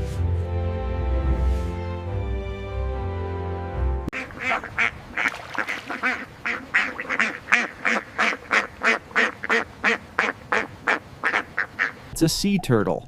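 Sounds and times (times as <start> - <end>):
background music: 0.0 - 4.1
duck quacking: 4.1 - 12.1.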